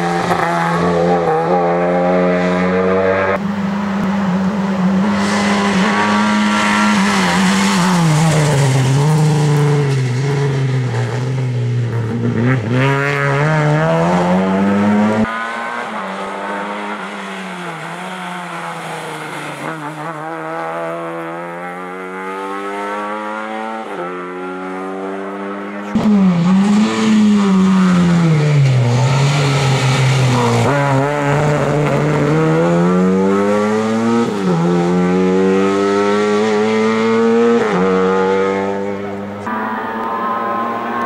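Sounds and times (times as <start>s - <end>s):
car engine accelerating hard: 0.0s - 41.0s.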